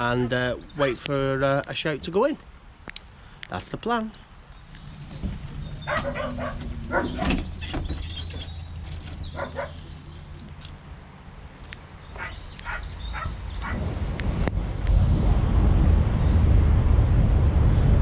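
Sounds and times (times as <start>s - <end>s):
dog barking: 5.8s - 7.4s, 9.3s - 9.8s, 12.2s - 13.8s.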